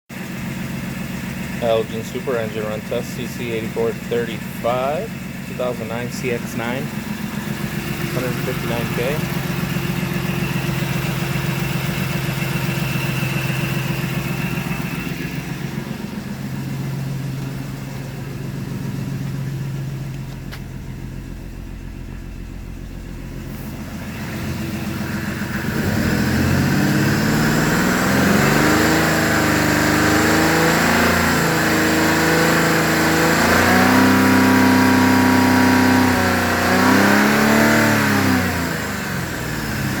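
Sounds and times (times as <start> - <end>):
car engine idling and revving: 0.1 - 40.0.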